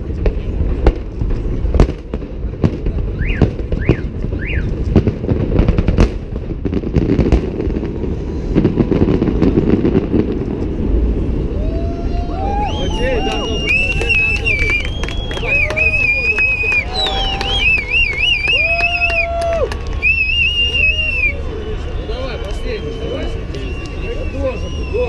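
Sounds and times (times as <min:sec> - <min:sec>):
low rumble: 0:00.0 - 0:22.1
firework bangs: 0:00.0 - 0:25.0
firework whistles: 0:03.1 - 0:04.9, 0:11.5 - 0:25.0.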